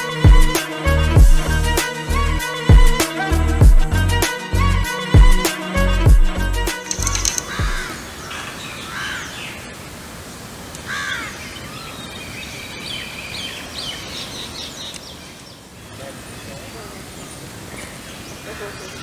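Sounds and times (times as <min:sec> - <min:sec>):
outdoor background noise: 0:06.7 - 0:19.0
quick high bird chirps: 0:06.8 - 0:08.3
bird calls: 0:06.8 - 0:09.7, 0:10.8 - 0:19.0.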